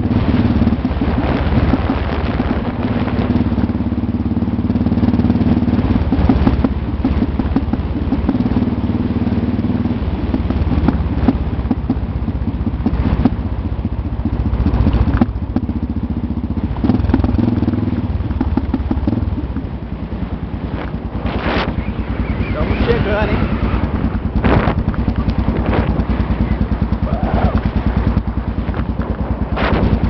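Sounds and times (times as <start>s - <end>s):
motorcycle engine running: 0.0s - 30.0s
knocks and rattles: 20.7s - 30.0s.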